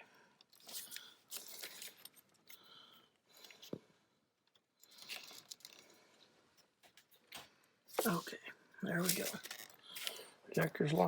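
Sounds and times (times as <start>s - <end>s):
clicks and scrapes of handling parts: 4.4s - 8.3s, 9.0s - 10.3s.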